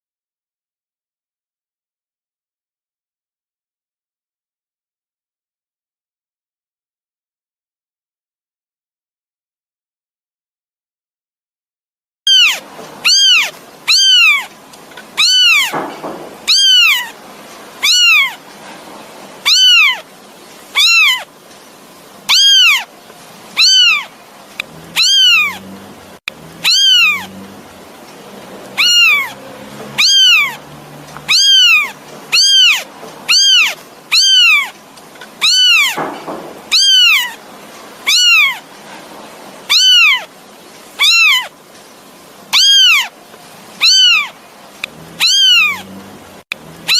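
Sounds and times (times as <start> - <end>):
kitten meowing: 12.3 - 14.5, 15.2 - 17.2, 17.8 - 18.4, 19.4 - 20.0, 20.7 - 21.3, 22.3 - 22.9, 23.6 - 25.7, 26.6 - 27.4, 28.7 - 30.6, 31.2 - 34.8, 35.4 - 37.4, 38.0 - 38.7, 39.7 - 40.3, 41.0 - 41.5, 42.5 - 43.1, 43.8 - 45.9.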